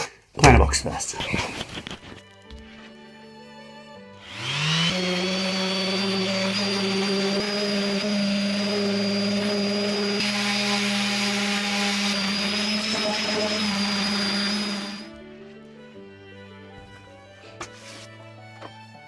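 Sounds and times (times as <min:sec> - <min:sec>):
electric sander whining: 0:04.2 - 0:15.4.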